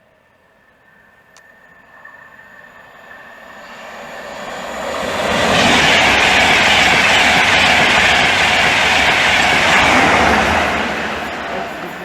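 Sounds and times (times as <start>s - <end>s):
train passing at speed: 0.0s - 12.0s.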